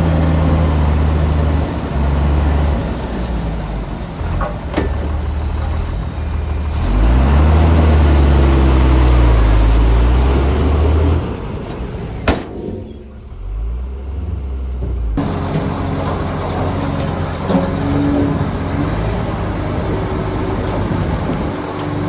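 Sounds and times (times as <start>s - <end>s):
heavy diesel engine revving: 0.0s - 22.0s
sharp metal clank: 12.3s - 13.1s.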